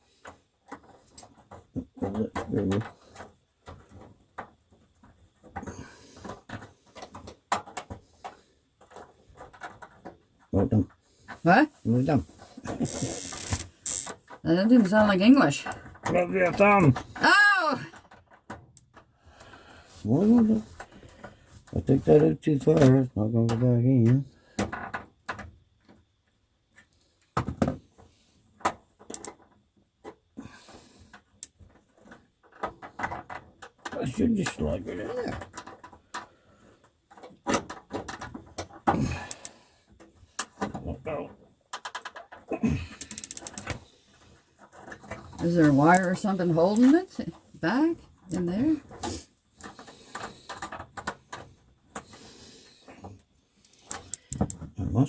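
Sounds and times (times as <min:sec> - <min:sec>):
plastic parts clicking and knocking: 0:00.1 - 0:11.5, 0:12.2 - 0:19.5, 0:20.2 - 0:54.8
heater parts clicking and tapping: 0:28.6 - 0:29.4, 0:37.1 - 0:48.8, 0:53.6 - 0:54.7.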